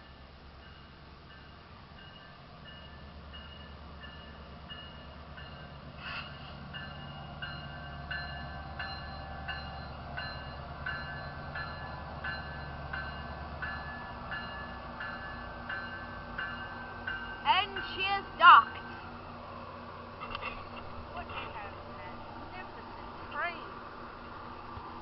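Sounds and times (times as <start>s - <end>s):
train engine rumble: 0.0s - 25.0s.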